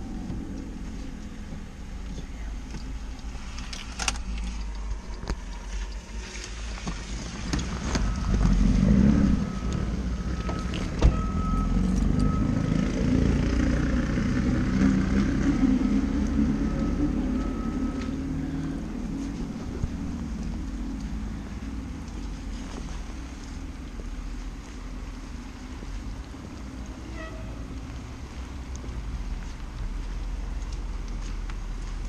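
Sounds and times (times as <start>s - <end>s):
reversing alarm beeping: 7.9s - 13.2s, 15.9s - 18.8s.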